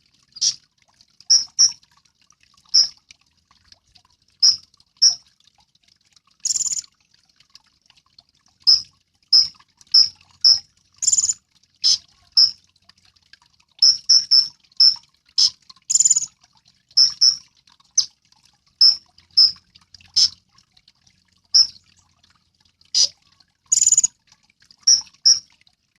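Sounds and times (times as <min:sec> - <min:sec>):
bird giving high chirps: 0:01.3 - 0:01.8, 0:06.5 - 0:06.8, 0:09.4 - 0:12.6, 0:15.9 - 0:16.3, 0:17.0 - 0:17.4, 0:23.7 - 0:24.1, 0:24.9 - 0:25.4.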